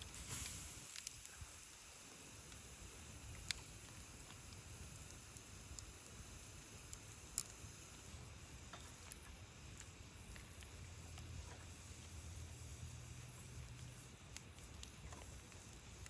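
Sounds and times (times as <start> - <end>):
sharp clicks and pops: 0.0 - 1.7, 2.3 - 16.0
low steady rumble: 7.6 - 16.0.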